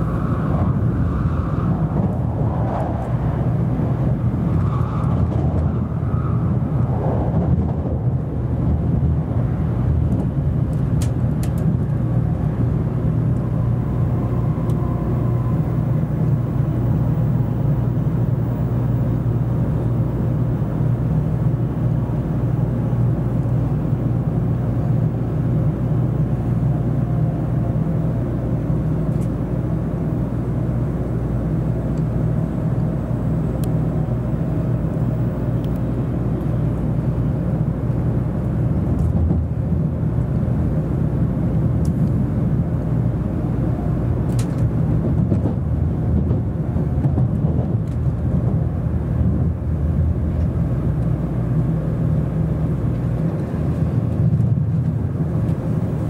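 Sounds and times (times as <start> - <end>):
train cabin rumble and hum: 0.0 - 56.0.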